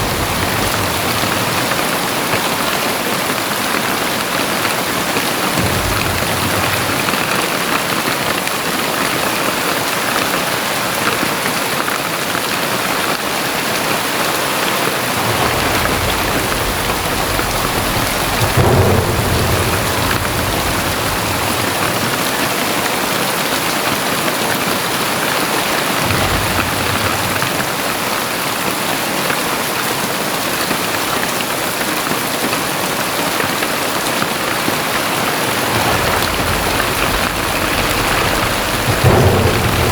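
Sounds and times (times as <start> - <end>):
low rumble: 0.0 - 2.5, 5.6 - 8.0, 15.0 - 22.7, 26.0 - 28.2, 34.6 - 39.9
heavy rain falling: 0.0 - 39.9.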